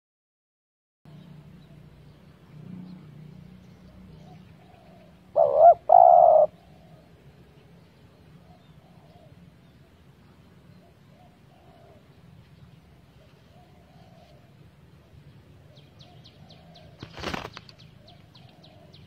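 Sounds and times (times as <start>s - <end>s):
dove cooing: 4.2s - 7.1s, 8.4s - 9.4s, 10.8s - 12.1s, 13.2s - 19.0s.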